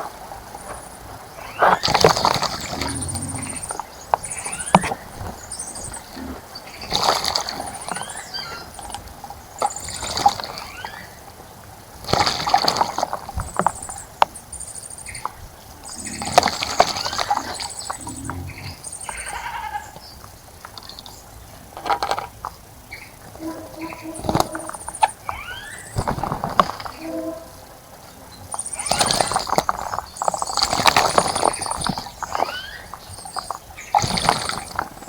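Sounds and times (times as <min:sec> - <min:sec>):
birds splashing wings in water: 0:01.2 - 0:21.1, 0:23.8 - 0:35.0
high bird chirps and calls: 0:22.9 - 0:26.1.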